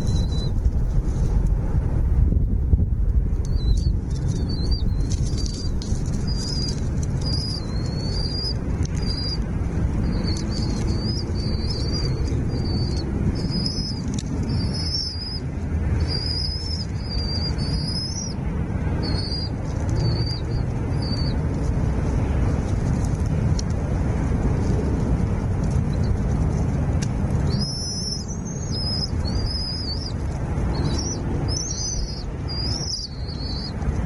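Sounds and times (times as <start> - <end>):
small birds chirping: 0.0 - 0.6, 3.4 - 23.3, 24.6 - 34.0
steady low rumble: 0.0 - 34.0.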